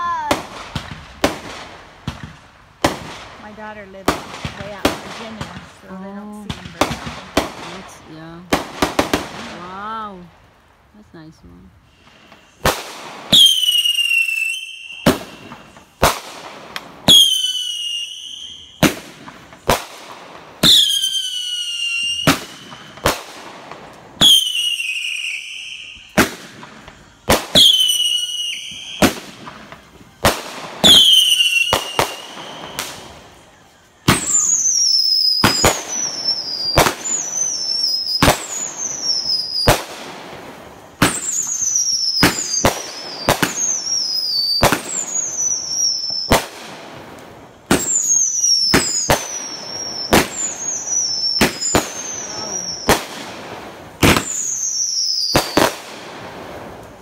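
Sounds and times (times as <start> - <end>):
fireworks banging: 0.0 - 10.3, 11.1 - 33.4, 34.0 - 57.0
falling firework whistle: 13.3 - 16.0, 17.1 - 19.0, 20.6 - 23.0, 24.2 - 29.8, 30.8 - 33.4, 34.0 - 39.9, 41.0 - 46.5, 47.8 - 53.1, 54.0 - 55.8.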